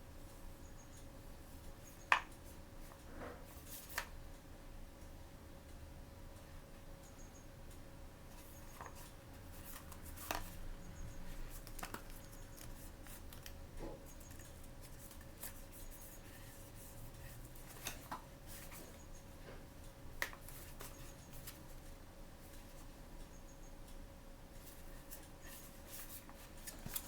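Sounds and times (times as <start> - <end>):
faint steady hum: 0.0 - 27.0
hands handling toy packaging: 11.5 - 13.6.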